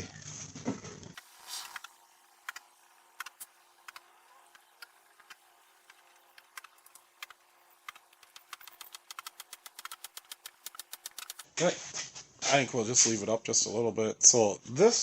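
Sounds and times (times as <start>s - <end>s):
ratchet clicks: 1.4s - 11.5s
metal parts clicking and knocking: 4.9s - 11.4s.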